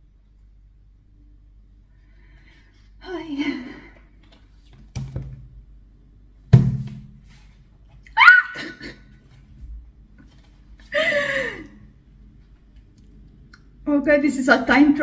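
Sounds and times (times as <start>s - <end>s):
loud thud: 6.5s - 7.3s
high-pitched squeals of excitement: 8.2s - 8.7s.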